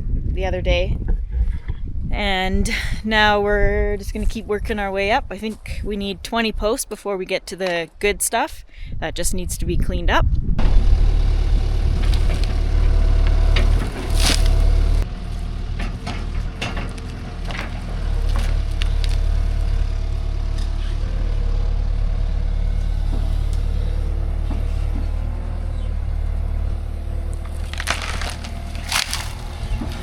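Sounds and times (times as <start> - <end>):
excavator diesel engine running: 10.6 - 30.0
wood cracking and splintering: 12.0 - 19.9, 27.3 - 30.0.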